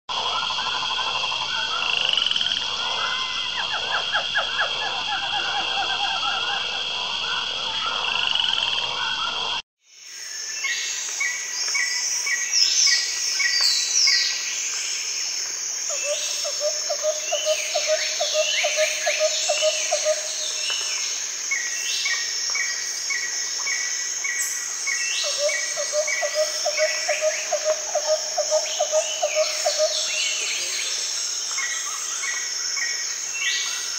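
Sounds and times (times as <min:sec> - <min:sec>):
frogs croaking in chorus: 0:00.2 - 0:09.6, 0:10.7 - 0:33.9
bird calls: 0:15.9 - 0:33.9.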